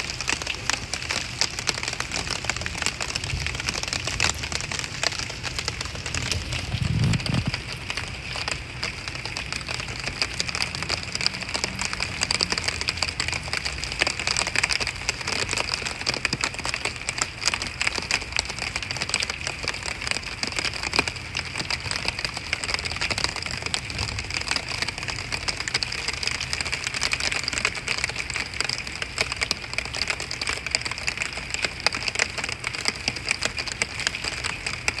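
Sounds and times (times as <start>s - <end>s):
rain on hard surface: 0.0s - 35.0s.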